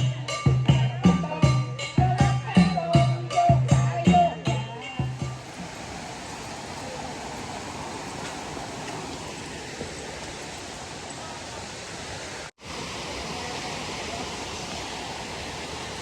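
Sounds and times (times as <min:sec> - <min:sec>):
waterfall rushing: 0:05.0 - 0:16.0.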